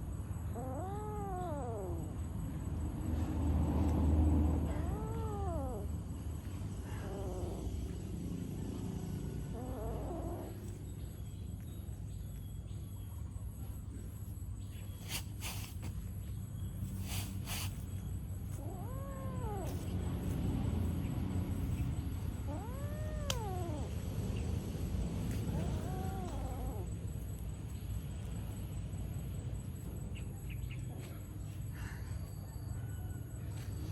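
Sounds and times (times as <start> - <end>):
cat meowing: 0.5 - 2.2, 4.6 - 6.0, 6.8 - 8.0, 9.4 - 10.8, 18.4 - 20.6, 21.8 - 24.5, 25.2 - 27.0.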